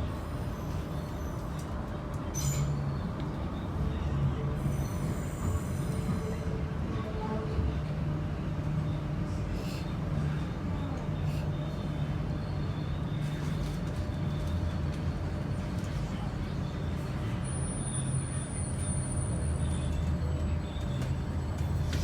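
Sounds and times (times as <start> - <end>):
train interior rumble and hum: 0.0 - 22.0.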